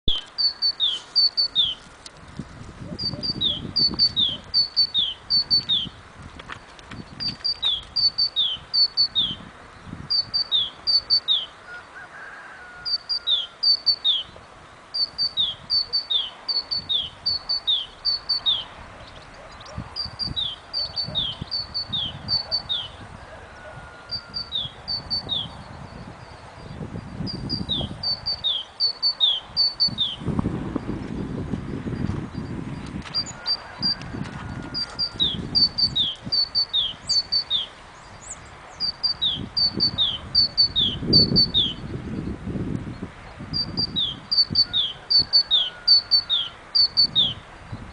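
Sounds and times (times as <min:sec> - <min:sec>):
songbird singing high notes: 0:00.0 - 0:01.8, 0:02.9 - 0:06.0, 0:07.2 - 0:09.4, 0:10.1 - 0:11.6, 0:12.8 - 0:14.4, 0:15.0 - 0:23.0, 0:24.1 - 0:30.3, 0:34.8 - 0:42.3, 0:43.5 - 0:47.4.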